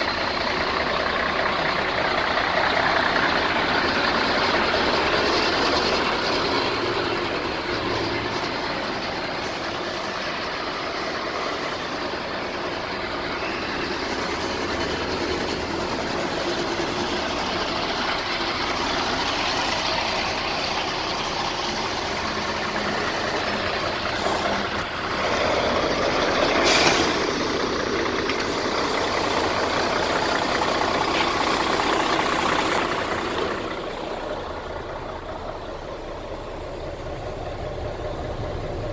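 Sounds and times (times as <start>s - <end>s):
truck diesel engine running: 0.0s - 38.9s
air release hiss: 26.5s - 27.4s.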